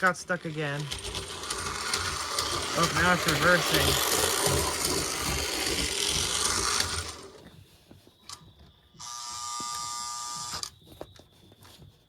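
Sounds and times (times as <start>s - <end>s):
toy train electric motor running: 0.0s - 7.5s, 9.0s - 10.7s.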